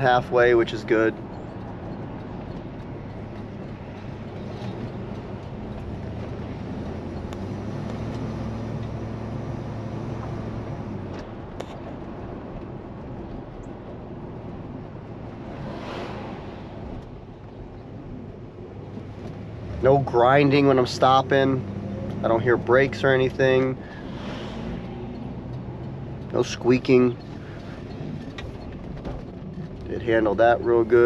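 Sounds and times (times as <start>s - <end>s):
car engine rumble: 0.0s - 31.0s
road noise: 0.0s - 31.0s
brief rushing sound: 15.4s - 17.1s.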